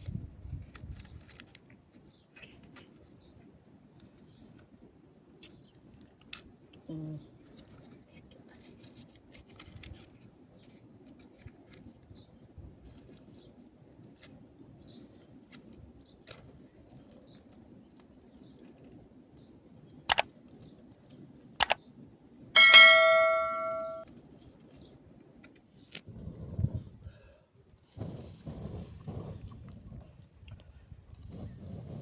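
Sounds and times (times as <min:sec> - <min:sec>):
loud ringing metallic clang: 0:22.6 - 0:24.0
sharp knocks: 0:22.6 - 0:24.0.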